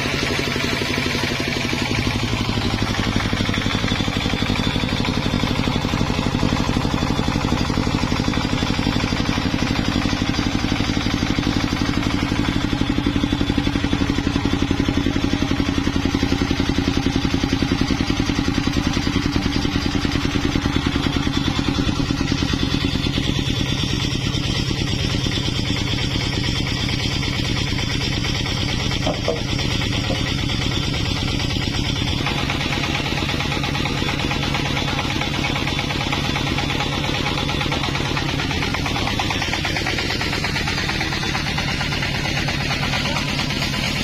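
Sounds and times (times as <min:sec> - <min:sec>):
engine running with fast pulse: 0:00.0 - 0:44.0.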